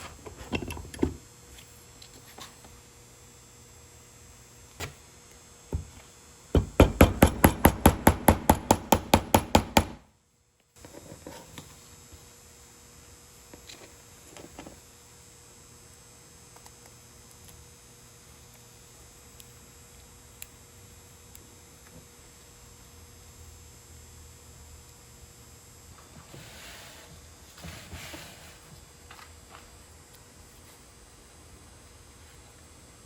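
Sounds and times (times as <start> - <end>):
rapid sharp knocks: 6.6 - 10.0.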